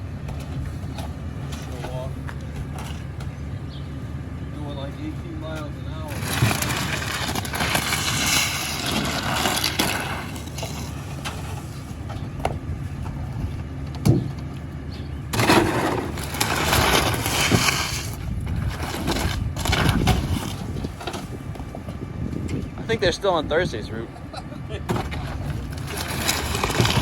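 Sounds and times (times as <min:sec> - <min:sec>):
garbage truck engine and road rumble: 0:00.0 - 0:27.0
knocks and rattles: 0:12.0 - 0:14.6.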